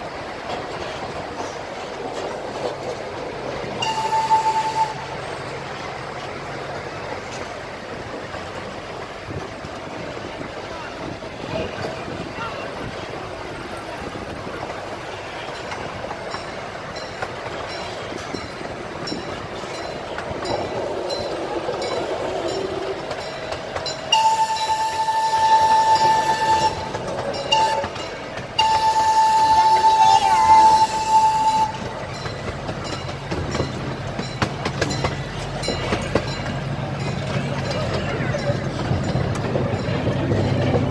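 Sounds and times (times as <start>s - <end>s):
miniature train rumbling on track: 0.0s - 40.9s
wheels clicking over rail joints: 0.0s - 40.9s
train horn blast: 3.8s - 5.1s, 24.1s - 32.0s
wheel clicks over rail joints: 31.1s - 40.9s.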